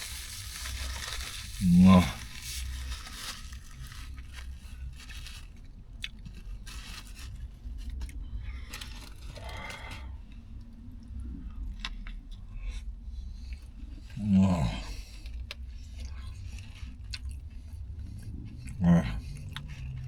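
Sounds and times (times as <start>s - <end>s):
crunching bread: 0.0s - 20.0s
chewing sandwich with mouth clicks: 5.5s - 6.8s, 7.4s - 20.0s.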